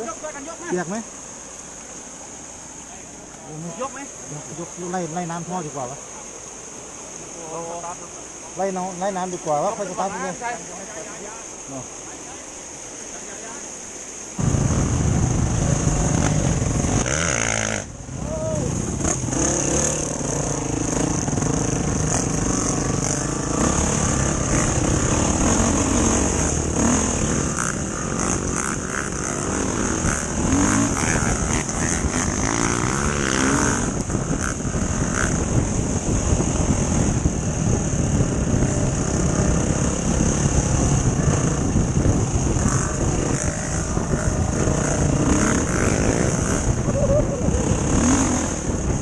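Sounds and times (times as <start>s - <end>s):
dirt bike engine running: 14.4s - 49.0s.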